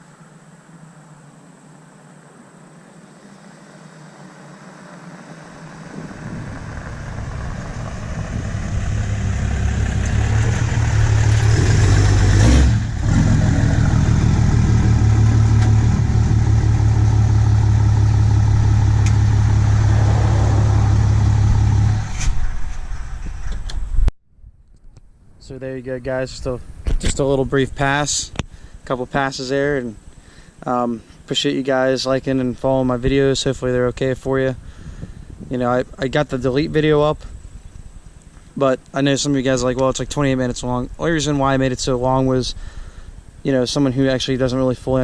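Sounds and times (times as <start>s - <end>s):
diesel truck driving past: 3.4s - 23.2s.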